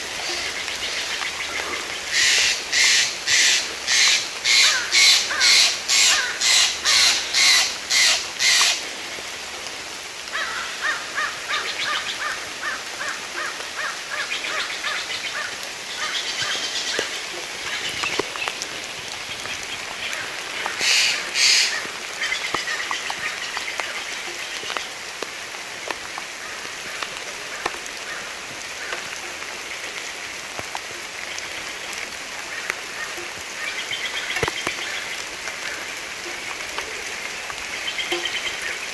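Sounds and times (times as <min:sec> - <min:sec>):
steady rain: 0:00.0 - 0:38.9
bird chattering calls: 0:00.3 - 0:08.8, 0:20.6 - 0:23.4
bird cawing harshly: 0:02.1 - 0:08.8, 0:10.4 - 0:11.6, 0:20.7 - 0:21.9.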